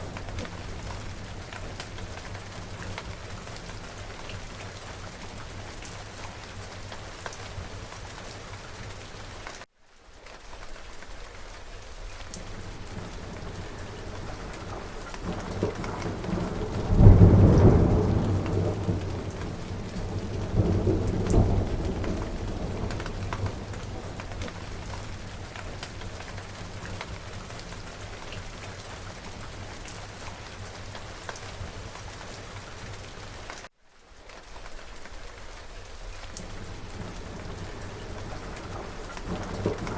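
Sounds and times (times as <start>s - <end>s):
steady rain falling: 0.0s - 39.9s
thunder rumbling: 12.4s - 29.6s, 36.4s - 39.9s.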